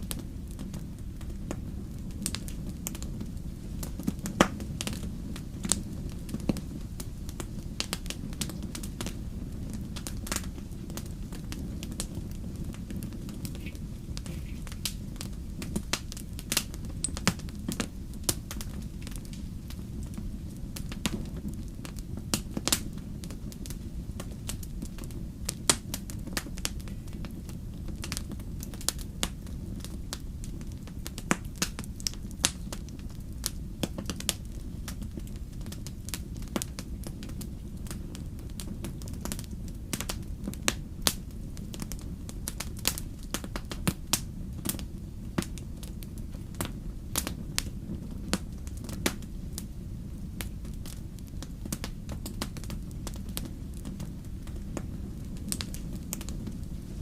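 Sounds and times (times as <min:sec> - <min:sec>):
steady low rumble: 0:00.0 - 0:57.0
wood fire crackling: 0:00.0 - 0:57.0.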